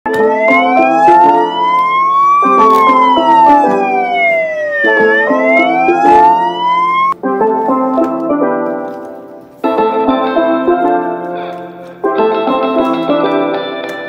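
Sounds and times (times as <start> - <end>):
wailing siren: 0.1 - 7.2
background music: 0.1 - 14.0.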